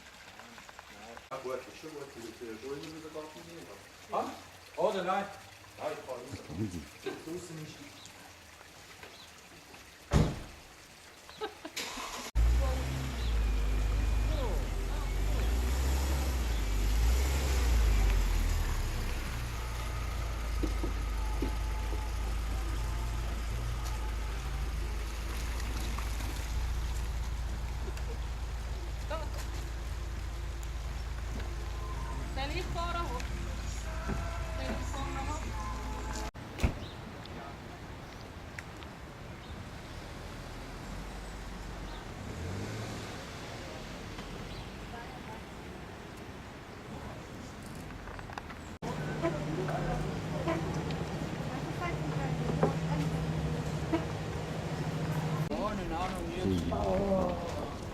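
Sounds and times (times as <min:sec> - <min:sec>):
motor vehicle rumbling: 0:11.8 - 0:57.9.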